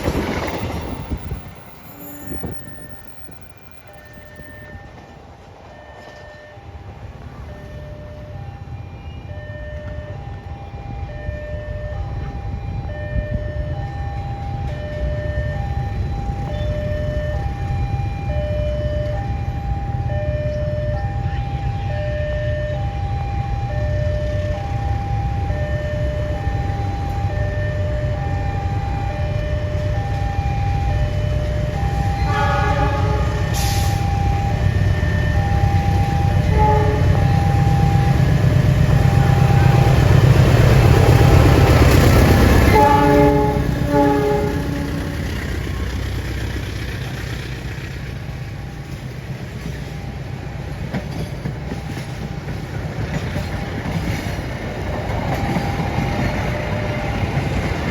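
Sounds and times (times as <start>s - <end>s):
train rumbling past: 0.0s - 57.9s
level crossing alarm two tones: 0.8s - 6.8s, 7.4s - 40.2s
train horn chords: 30.8s - 46.2s.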